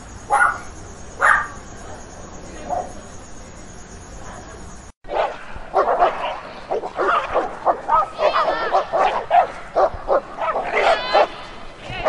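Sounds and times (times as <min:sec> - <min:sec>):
dog barking: 0:00.3 - 0:01.6, 0:05.1 - 0:11.3.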